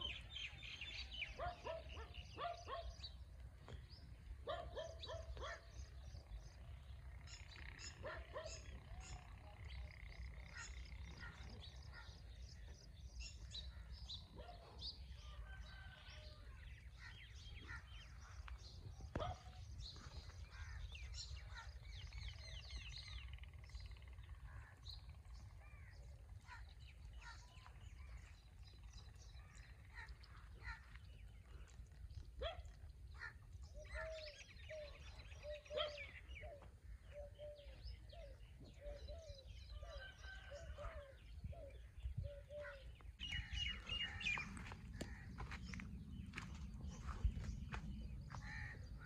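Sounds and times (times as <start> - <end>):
birds chirping and calling: 0.0 - 15.9, 16.6 - 49.0
steady low rumble: 41.3 - 49.0.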